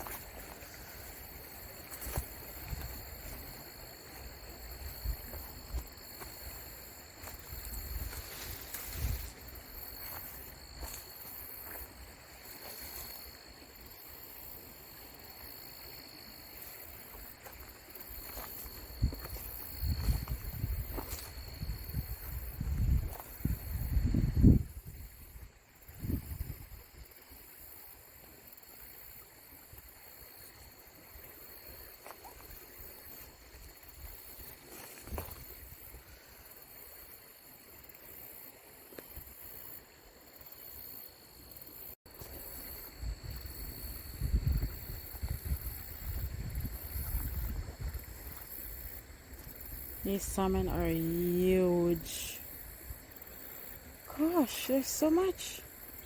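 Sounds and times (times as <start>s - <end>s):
creek water: 0.0s - 24.2s, 26.6s - 56.0s
wind buffeting microphone: 19.0s - 25.1s, 25.9s - 26.8s, 43.0s - 48.4s.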